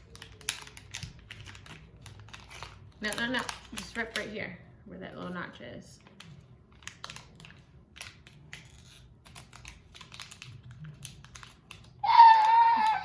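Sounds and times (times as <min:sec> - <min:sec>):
plastic wrapper ripping and crinkling: 0:00.0 - 0:04.2, 0:06.0 - 0:13.0
high-pitched voice crying out: 0:12.0 - 0:13.0.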